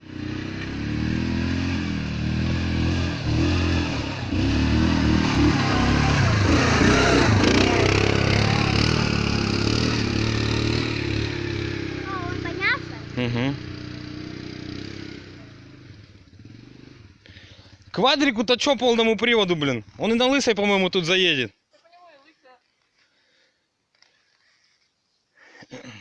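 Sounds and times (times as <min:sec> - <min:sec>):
off-road vehicle engine revving: 0:00.0 - 0:17.9.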